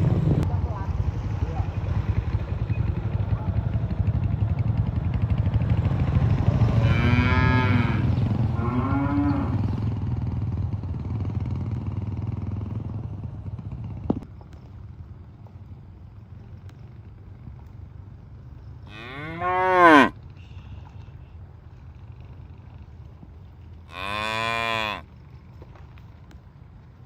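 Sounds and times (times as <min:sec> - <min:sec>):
cow mooing: 0:06.7 - 0:09.8, 0:18.9 - 0:20.2, 0:23.9 - 0:25.1.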